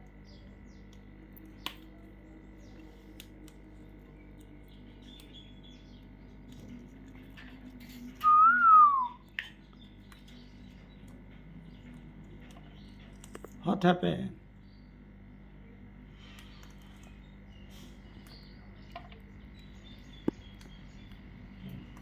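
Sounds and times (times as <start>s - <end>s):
parrot whistling: 8.2s - 9.2s.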